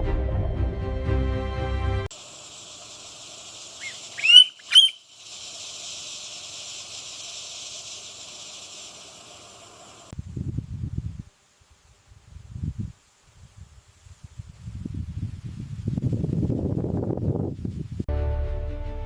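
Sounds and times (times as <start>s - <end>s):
insect chorus: 2.1s - 18.0s
bird calling: 3.7s - 5.0s.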